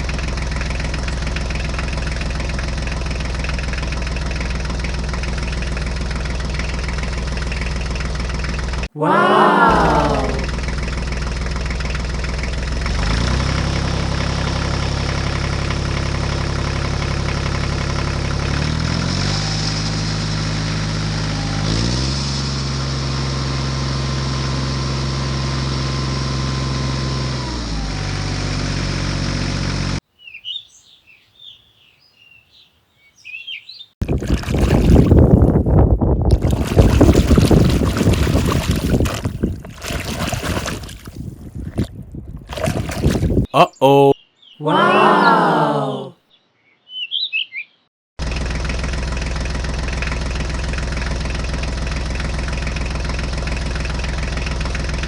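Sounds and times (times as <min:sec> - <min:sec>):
engine running: 0:00.0 - 0:08.9, 0:09.7 - 0:30.0, 0:48.2 - 0:55.0
faint bird chirps: 0:30.2 - 0:33.9, 0:46.3 - 0:47.9
water splashing: 0:34.0 - 0:35.3, 0:36.3 - 0:43.5.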